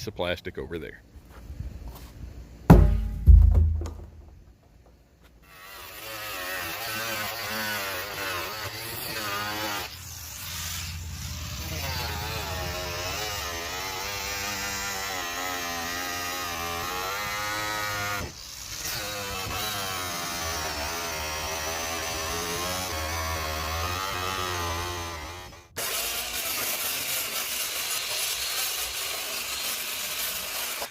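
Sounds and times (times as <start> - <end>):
power saw cutting plastic: 5.4 - 30.9.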